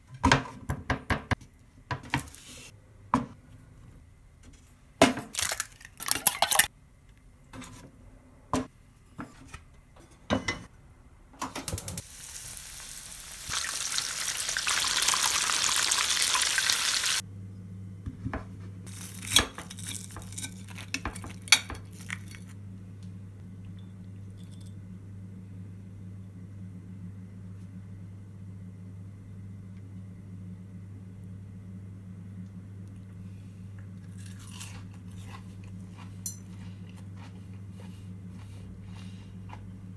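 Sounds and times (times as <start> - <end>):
food frying hiss: 12.0 - 17.2.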